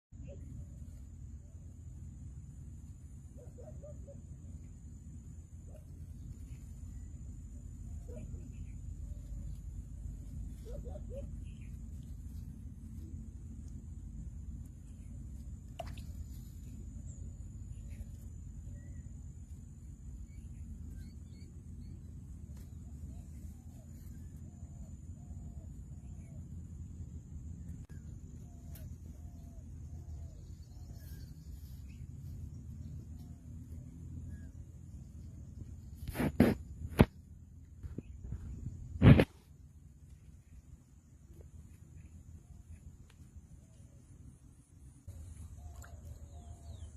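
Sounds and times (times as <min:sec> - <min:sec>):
low steady rumble: 0:00.0 - 0:46.9
faint bird chirps: 0:00.2 - 0:46.9
wind rumble on microphone: 0:35.2 - 0:39.5.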